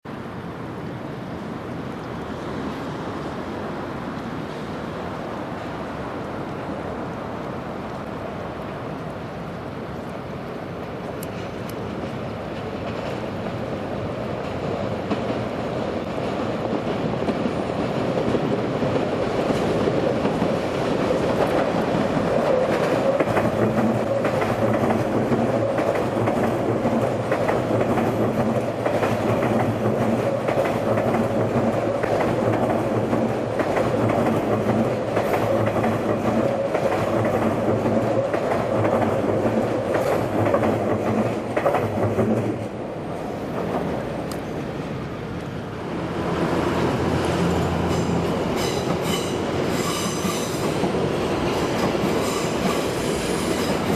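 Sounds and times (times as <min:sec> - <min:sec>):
train wheels clattering on rails: 0:11.1 - 0:44.5, 0:46.2 - 0:53.9.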